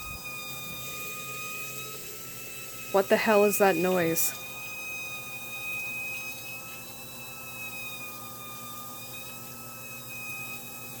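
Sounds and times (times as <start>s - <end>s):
low machine hum: 0.0s - 5.1s
washing machine high-pitched squeal: 0.0s - 11.0s.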